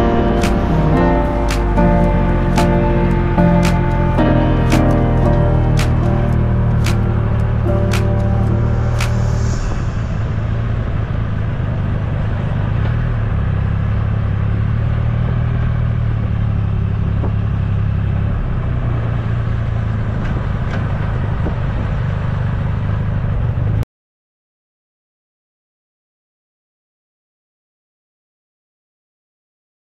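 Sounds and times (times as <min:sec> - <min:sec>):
motorcycle engine running: 0:10.4 - 0:23.8.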